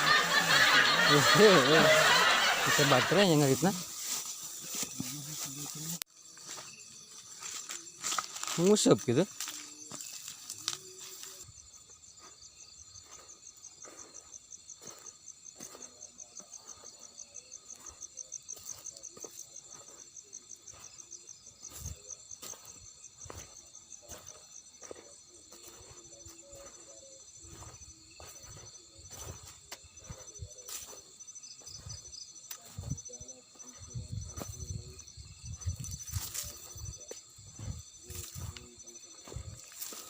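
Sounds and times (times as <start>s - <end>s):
insects trilling: 0.0s - 40.0s.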